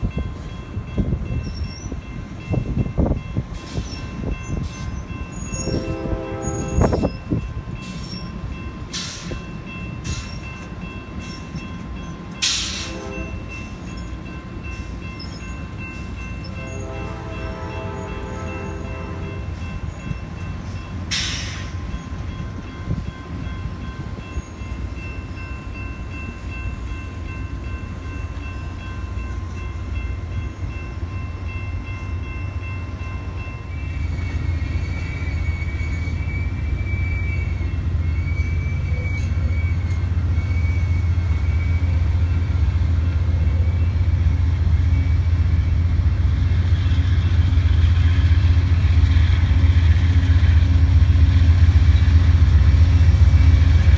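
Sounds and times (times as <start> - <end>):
diesel train rumble: 0.0 - 53.9
high wavering squeal: 33.7 - 42.4.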